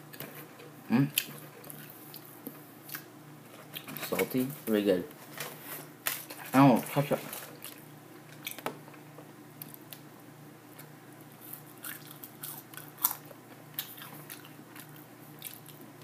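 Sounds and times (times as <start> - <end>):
faint steady hum: 0.0 - 16.0
person chewing crunchy food: 11.4 - 15.9.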